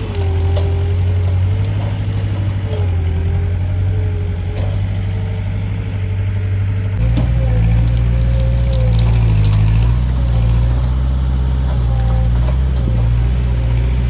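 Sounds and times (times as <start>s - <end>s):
loader engine droning: 0.0s - 14.0s
wavering whine: 0.0s - 14.0s.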